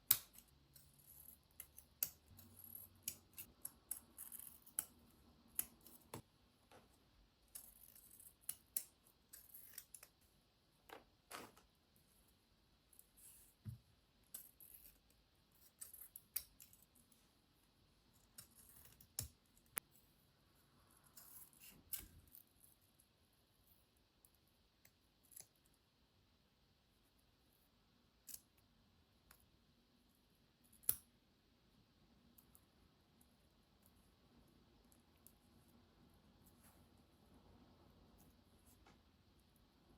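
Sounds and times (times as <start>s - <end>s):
faint clicks and scissor snips: 0.0s - 6.2s.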